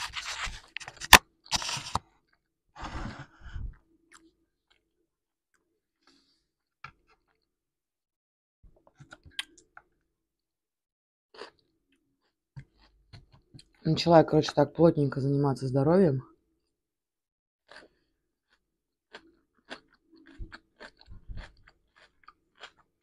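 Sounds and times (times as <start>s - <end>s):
chewing and crunching food: 3.2s - 7.6s, 8.7s - 10.1s, 11.3s - 14.6s, 17.6s - 23.0s.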